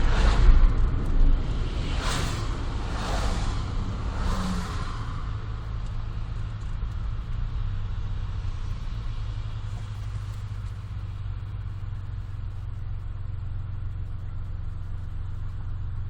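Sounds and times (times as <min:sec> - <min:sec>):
road and wind rush: 0:00.0 - 0:15.8
low exhaust hum: 0:00.0 - 0:16.0.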